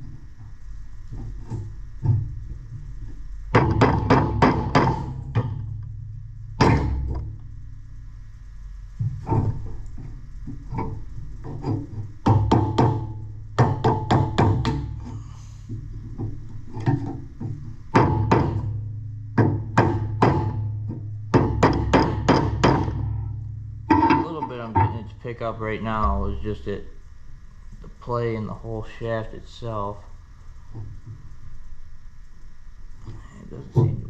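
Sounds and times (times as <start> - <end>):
steady low hum: 0.0 - 34.0
hammer striking metal: 21.4 - 23.2, 23.9 - 25.1, 25.9 - 26.8.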